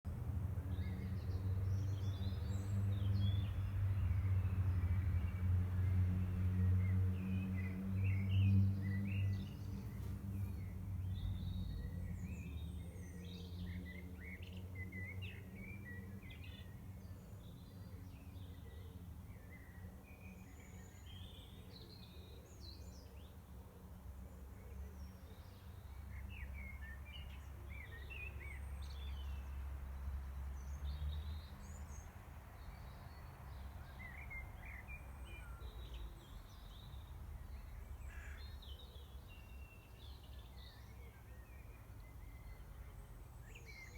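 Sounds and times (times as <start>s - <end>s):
songbirds singing and calling: 0.1s - 43.9s.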